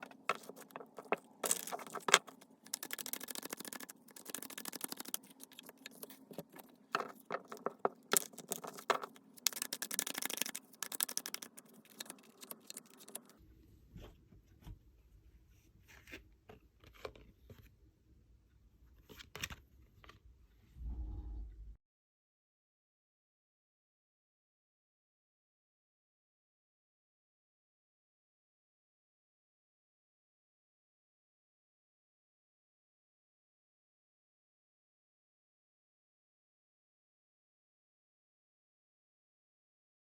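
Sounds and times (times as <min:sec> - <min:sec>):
cards shuffling and rustling: 0:00.0 - 0:13.3
scattered clicks and taps: 0:00.0 - 0:13.3
low hum: 0:20.8 - 0:21.8.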